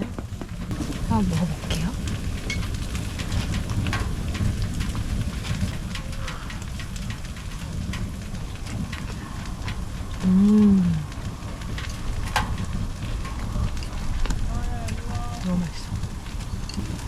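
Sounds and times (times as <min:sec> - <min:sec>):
wood fire crackling in stove: 0:00.0 - 0:17.0
person humming mmm: 0:10.2 - 0:11.0.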